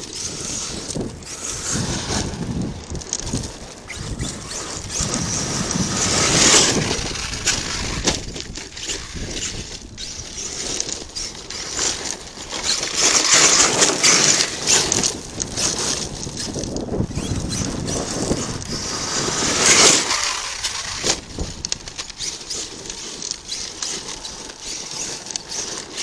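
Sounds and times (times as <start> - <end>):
toy truck tyres crunching gravel: 0.0 - 26.0.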